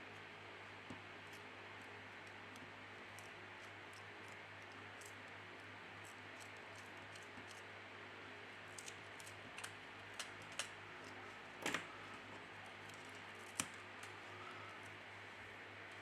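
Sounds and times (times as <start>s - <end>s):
low steady hum: 0.0s - 16.0s
small tools and plastic parts clicking: 2.2s - 5.2s, 6.0s - 7.6s, 8.7s - 11.8s.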